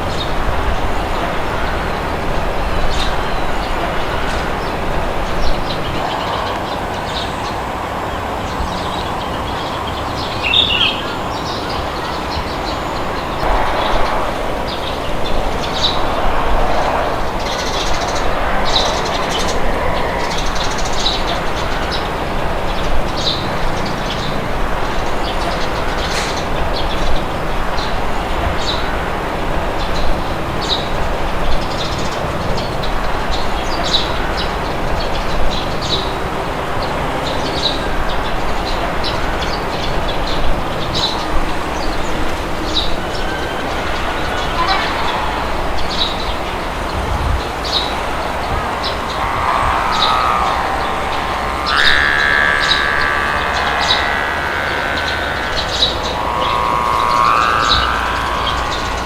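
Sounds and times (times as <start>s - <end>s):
small birds chirping: 0.0s - 59.0s
wind rushing: 11.8s - 31.6s, 43.8s - 59.0s.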